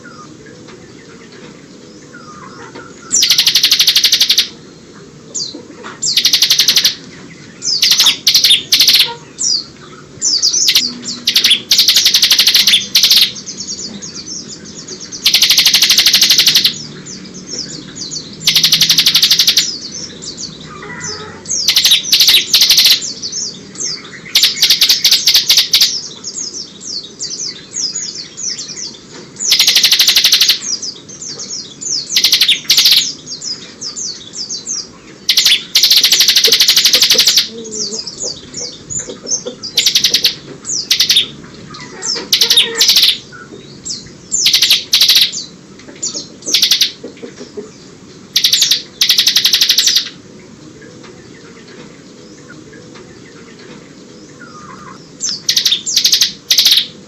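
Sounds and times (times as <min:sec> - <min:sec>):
bird singing rapid trills: 0:01.8 - 0:57.0
bird chattering notes: 0:02.6 - 0:04.6, 0:05.4 - 0:07.1, 0:07.7 - 0:09.6, 0:10.3 - 0:16.9, 0:17.6 - 0:20.1, 0:20.8 - 0:23.2, 0:24.2 - 0:26.1, 0:29.4 - 0:33.2, 0:34.8 - 0:43.3, 0:44.3 - 0:50.2, 0:54.5 - 0:57.0.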